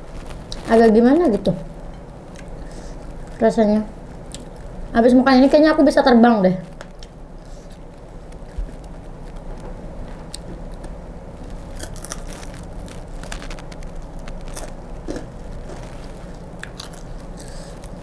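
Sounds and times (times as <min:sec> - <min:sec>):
crisp crunching while chewing: 0:10.2 - 0:18.0.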